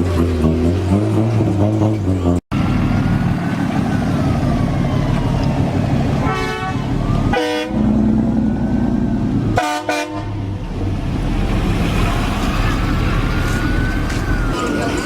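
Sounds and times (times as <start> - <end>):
low rumble of engines: 0.0 - 15.0
car horn honking: 6.2 - 7.9, 9.6 - 10.4.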